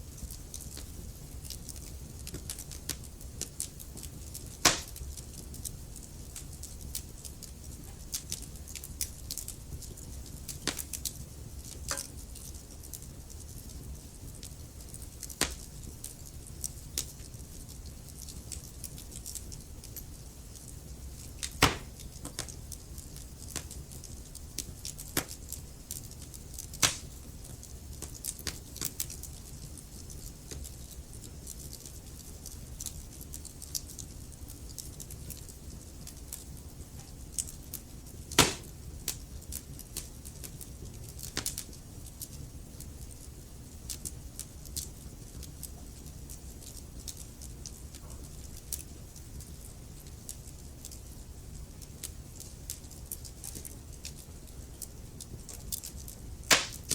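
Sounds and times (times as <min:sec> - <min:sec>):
wood fire crackling: 0:00.0 - 0:56.9.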